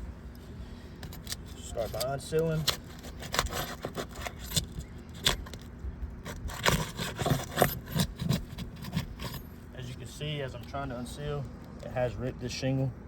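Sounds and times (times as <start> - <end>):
shingles scraping and crackling: 1.0 - 9.5
shingle tearing: 1.1 - 9.5.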